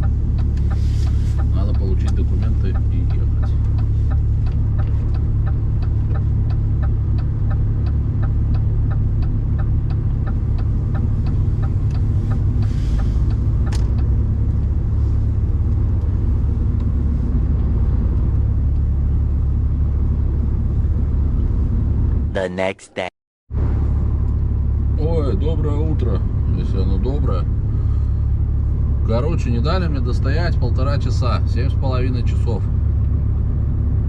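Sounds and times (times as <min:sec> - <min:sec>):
regular ticking: 0:00.0 - 0:00.8, 0:01.4 - 0:14.8
diesel engine rumble: 0:00.0 - 0:22.4, 0:23.5 - 0:34.0.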